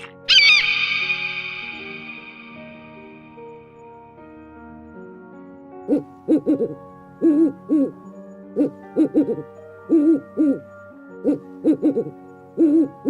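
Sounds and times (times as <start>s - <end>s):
animal hoot-like calls: 0.0s - 3.2s, 5.9s - 8.0s, 8.6s - 13.0s
soft background music: 0.0s - 13.0s.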